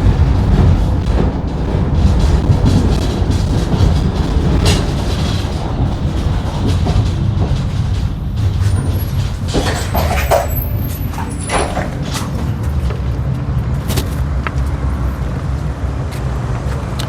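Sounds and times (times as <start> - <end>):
knocks: 0.0 - 13.0
tram wheels rumbling: 0.0 - 17.0
high-pitched squeaks: 2.5 - 12.7.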